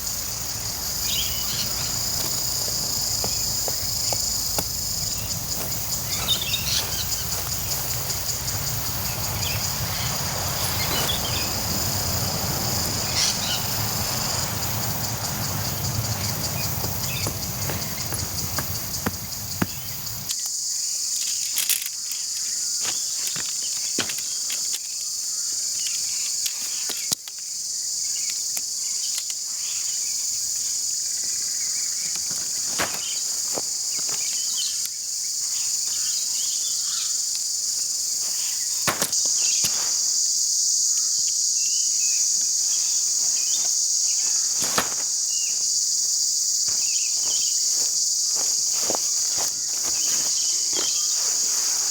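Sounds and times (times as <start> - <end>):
insect chorus: 0.0 - 51.9
tent gear clicks and knocks: 0.8 - 9.6, 15.3 - 20.6, 21.2 - 25.0, 32.0 - 34.9, 38.2 - 40.1, 43.5 - 45.5, 46.6 - 51.9.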